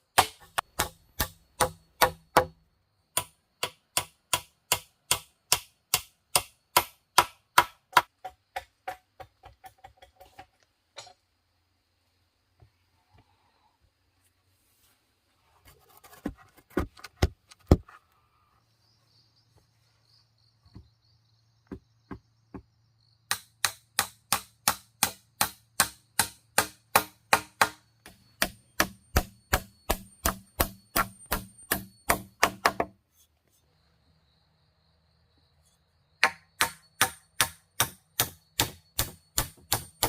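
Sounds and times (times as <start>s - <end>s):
blade chopping wood: 0.1s - 2.6s, 23.3s - 32.9s.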